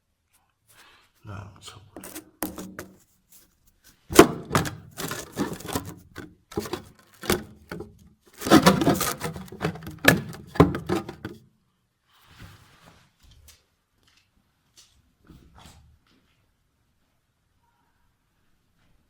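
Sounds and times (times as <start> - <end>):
camera handling knocks and rubbing: 2.0 - 3.0, 4.1 - 11.4.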